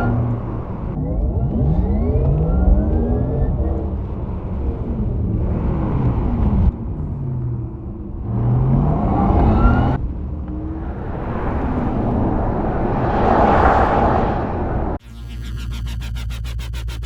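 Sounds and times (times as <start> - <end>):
tyre and road noise: 0.0 - 15.0
car passing with wind rush: 3.9 - 15.0.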